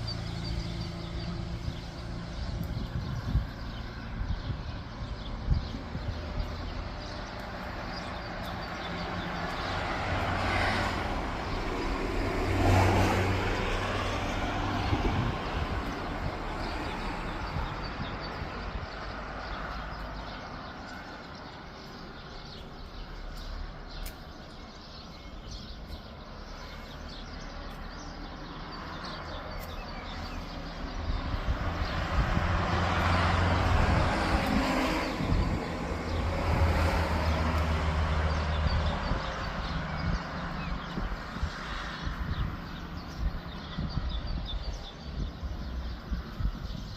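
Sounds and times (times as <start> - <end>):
steady low traffic rumble: 0.0 - 46.9
vehicle passing: 28.2 - 43.0.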